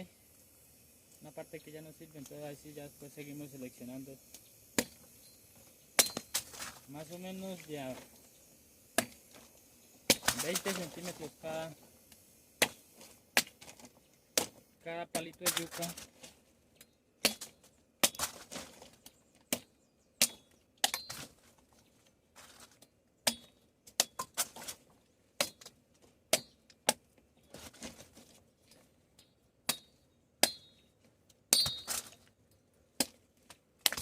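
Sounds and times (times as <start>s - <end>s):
metal blade chopping stems: 6.0s - 6.8s, 10.1s - 11.3s, 14.4s - 16.1s, 31.5s - 32.2s.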